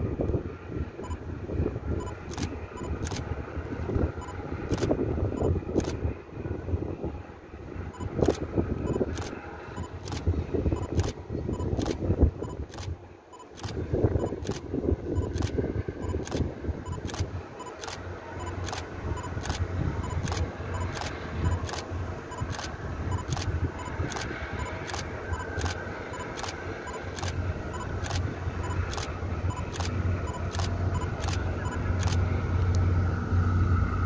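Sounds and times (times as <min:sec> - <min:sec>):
low outdoor rumble: 0:00.0 - 0:34.0
sharp regular clicks: 0:02.0 - 0:03.3, 0:04.7 - 0:04.9, 0:08.0 - 0:14.6, 0:15.2 - 0:32.8.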